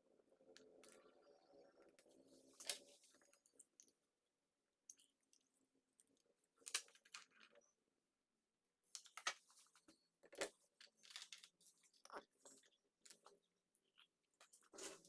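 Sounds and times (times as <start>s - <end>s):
small parts clicking and scraping: 4.9s - 7.8s, 8.8s - 15.0s.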